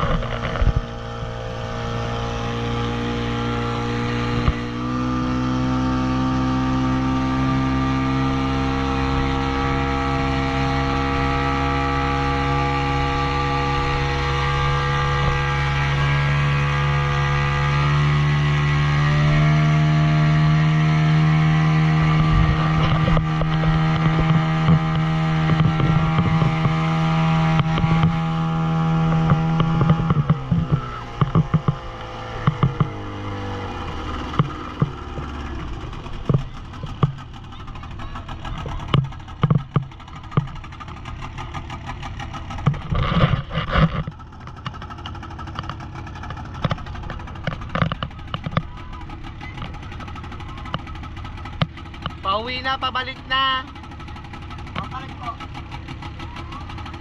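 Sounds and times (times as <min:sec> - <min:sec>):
motorboat engine running: 0:00.0 - 0:57.0
sharp thumps: 0:20.6 - 0:56.1.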